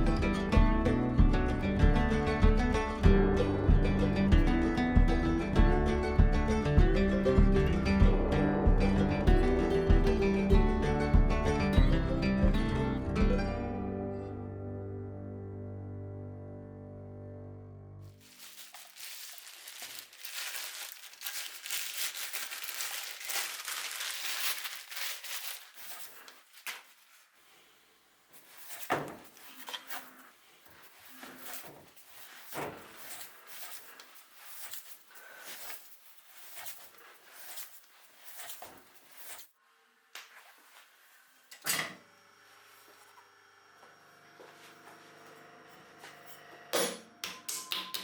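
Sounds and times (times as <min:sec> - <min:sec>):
soft music with held notes: 0:00.0 - 0:18.6
wrapping material crinkling: 0:18.1 - 0:27.6, 0:28.4 - 0:39.6
soft rubbing or sliding strokes: 0:18.2 - 0:39.6, 0:40.3 - 0:41.5, 0:42.4 - 0:43.2.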